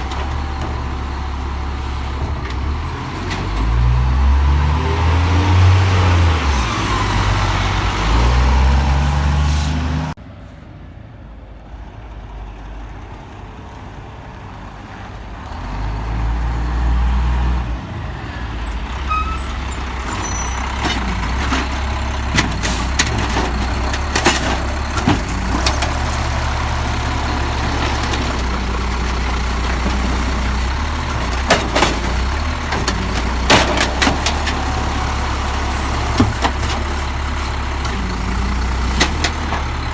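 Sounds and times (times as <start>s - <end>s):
truck engine revving: 0.0s - 10.2s, 18.7s - 39.9s
sharp clanks and knocks: 20.7s - 39.9s.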